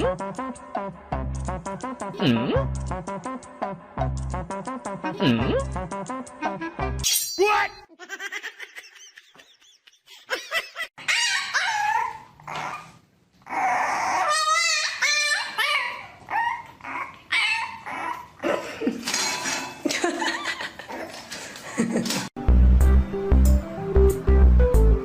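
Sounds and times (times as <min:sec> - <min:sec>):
dog whining and yipping: 0:11.0 - 0:18.4.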